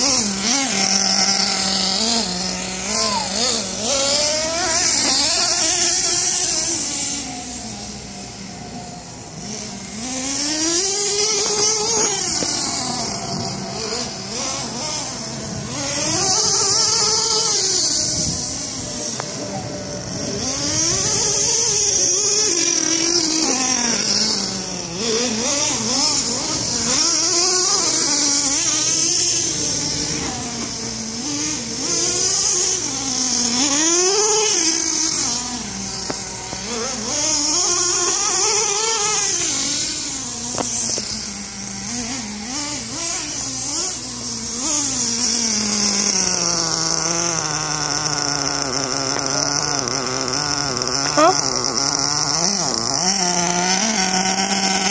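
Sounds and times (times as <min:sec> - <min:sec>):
rc truck engine revving: 0:00.0 - 0:54.9.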